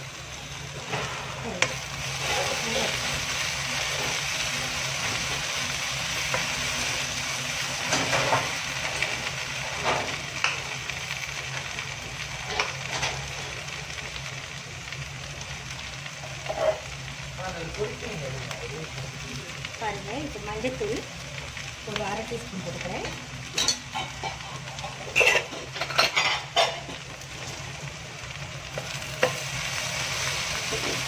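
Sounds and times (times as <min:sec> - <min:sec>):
okra sizzling in wok: 0:00.0 - 0:31.0.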